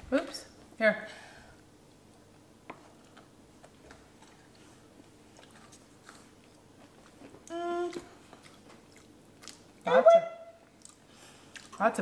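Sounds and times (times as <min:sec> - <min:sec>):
faint chewing with crunches: 0:02.1 - 0:09.9, 0:10.6 - 0:12.0.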